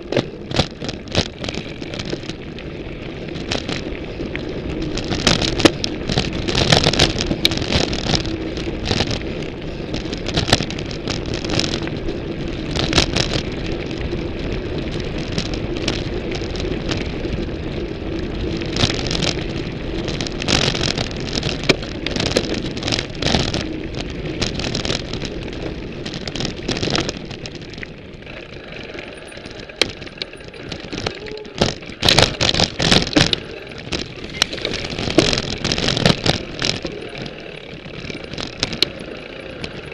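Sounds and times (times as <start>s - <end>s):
bike tyres rolling: 0.0s - 39.9s.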